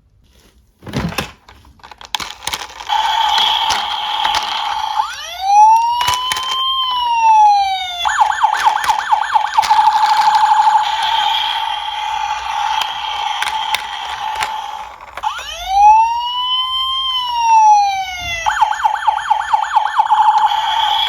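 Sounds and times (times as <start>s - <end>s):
sharp clicks: 1.9s - 7.0s, 7.8s - 15.5s
electronic police siren: 3.0s - 14.6s, 15.2s - 21.0s.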